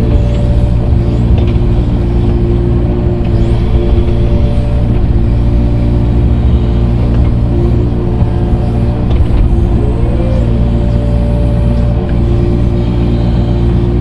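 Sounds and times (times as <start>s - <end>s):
earthmoving machine engine running: 0.0s - 14.0s.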